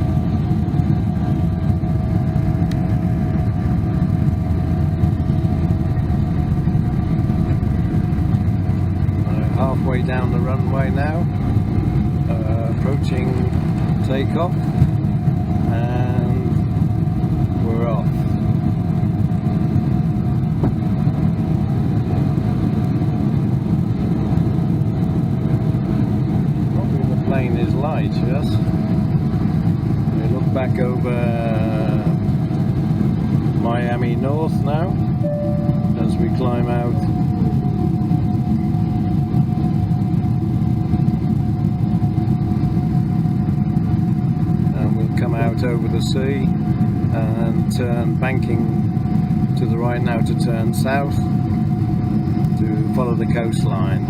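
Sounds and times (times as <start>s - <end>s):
fan tone whine: 0.0s - 54.0s
jet engine low rumble: 0.0s - 54.0s
faint steady tone: 35.2s - 36.9s.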